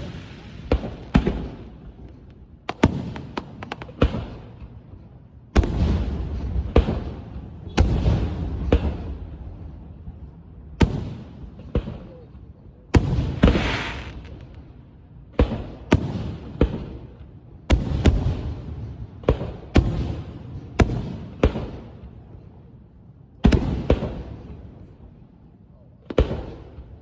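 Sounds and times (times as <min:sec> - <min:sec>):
fireworks crackling: 0:00.0 - 0:04.6, 0:13.0 - 0:14.7
fireworks bangs: 0:00.0 - 0:04.9, 0:05.6 - 0:14.7, 0:15.3 - 0:22.3, 0:23.4 - 0:24.9.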